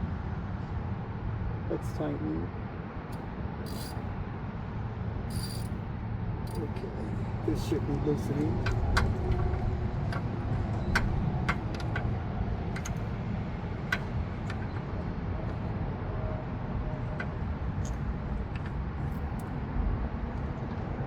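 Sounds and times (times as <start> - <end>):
steady low rumble: 0.0 - 21.0
socket wrench clicking: 3.1 - 4.0, 5.3 - 5.7.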